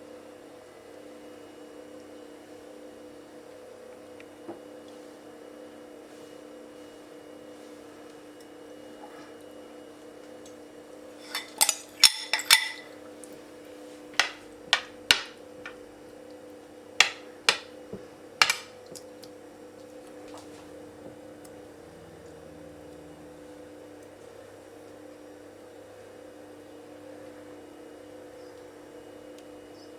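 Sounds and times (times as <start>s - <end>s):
steady low hum: 10.9s - 26.7s
utensils clinking on dish: 11.2s - 13.0s.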